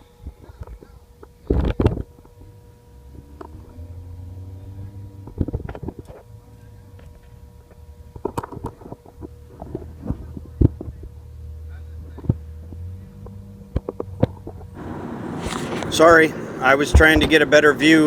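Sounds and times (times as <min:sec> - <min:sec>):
faint hum: 0:14.8 - 0:18.0
low steady rumble: 0:14.8 - 0:18.0.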